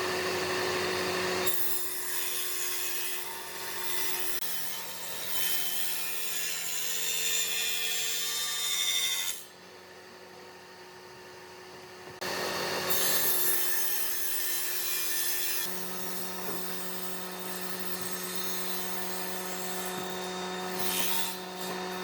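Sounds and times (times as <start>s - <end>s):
power tool grating on wood: 12.2s - 22.0s.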